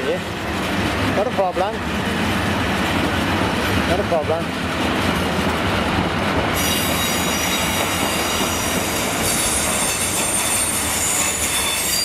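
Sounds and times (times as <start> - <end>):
train wheels rumbling on rails: 0.0 - 12.0
high-pitched wheel squeal: 6.6 - 12.0.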